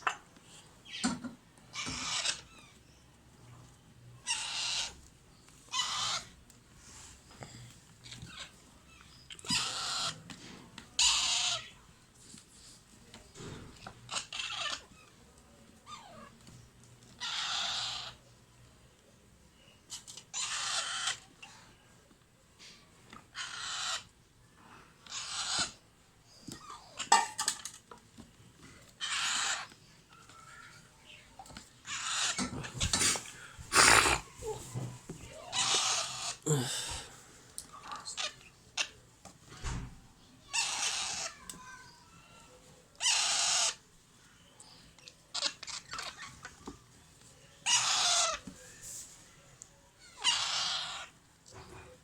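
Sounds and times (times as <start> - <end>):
parakeet chicks begging calls: 1.7 - 2.7, 4.2 - 5.0, 5.7 - 6.4, 9.5 - 10.2, 11.0 - 11.7, 14.1 - 15.0, 17.2 - 18.2, 20.3 - 21.3, 23.3 - 24.1, 25.0 - 25.8, 29.0 - 29.8, 31.8 - 34.3, 35.5 - 36.4, 40.5 - 41.4, 43.0 - 43.8, 47.6 - 48.4, 50.1 - 51.1.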